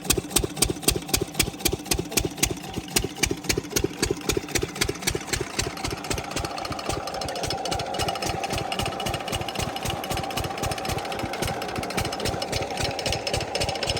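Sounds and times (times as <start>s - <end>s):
diesel water pump engine thumping: 0.0s - 13.9s.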